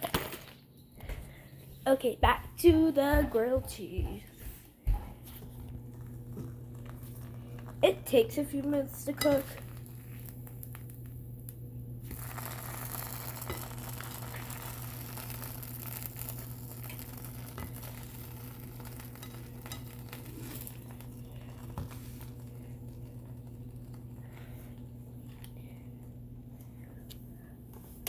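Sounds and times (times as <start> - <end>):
steady low hum: 0.0 - 28.0
bread sizzling in a frying pan: 5.8 - 25.4.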